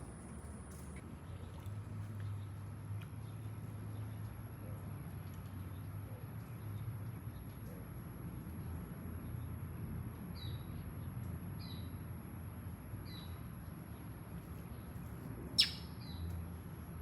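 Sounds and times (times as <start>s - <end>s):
small bird chirping: 15.6s - 16.3s.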